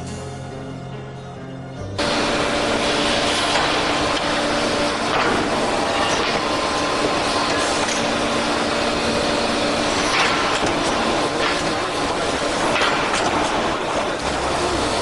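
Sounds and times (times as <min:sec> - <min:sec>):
machinery running: 0:02.0 - 0:15.0.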